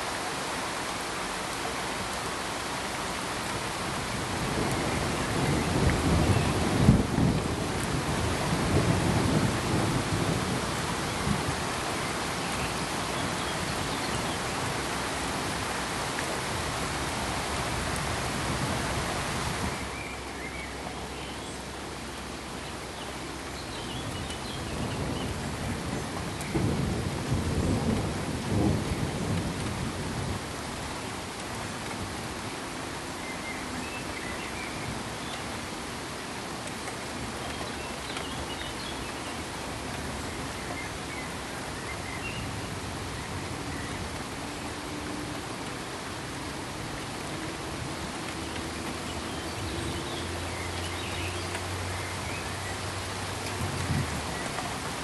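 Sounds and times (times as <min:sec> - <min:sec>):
steady rain: 0:00.0 - 0:55.0
low rolling thunder: 0:03.9 - 0:14.7, 0:24.1 - 0:30.9.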